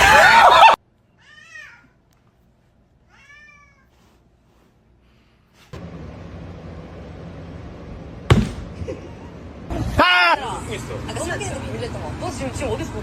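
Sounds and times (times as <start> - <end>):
cat meowing: 3.1 - 3.9
low hum: 5.7 - 9.8.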